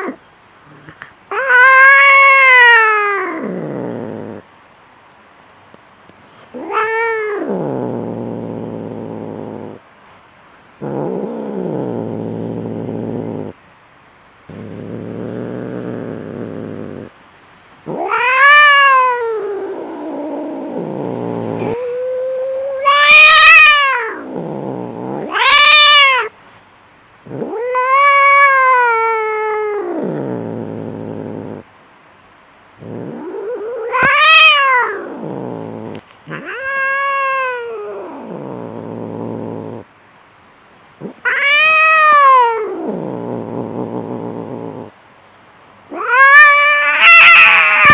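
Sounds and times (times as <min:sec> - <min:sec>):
cats growling: 0:00.0 - 0:04.5, 0:06.4 - 0:09.9, 0:10.8 - 0:13.6, 0:14.5 - 0:17.2, 0:17.8 - 0:26.4, 0:27.2 - 0:31.7, 0:32.8 - 0:39.9, 0:41.0 - 0:45.0, 0:45.9 - 0:47.9
cats yowling: 0:01.3 - 0:04.4, 0:06.5 - 0:09.8, 0:17.9 - 0:26.3, 0:27.3 - 0:31.6, 0:32.8 - 0:39.8, 0:41.0 - 0:44.9, 0:45.9 - 0:47.9.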